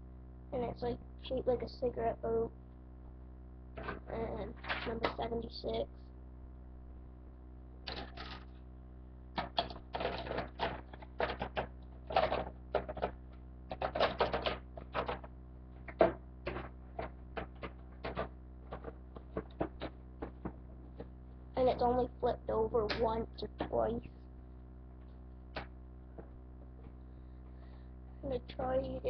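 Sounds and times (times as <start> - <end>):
small hard objects clattering: 7.9 - 8.5, 9.4 - 13.1, 13.7 - 21.0.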